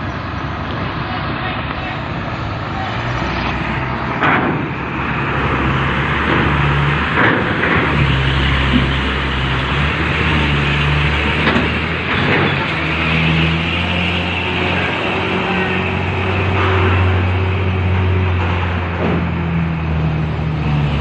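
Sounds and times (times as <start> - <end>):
truck engine drone: 0.0 - 21.0
sharp clunks: 4.2 - 4.8.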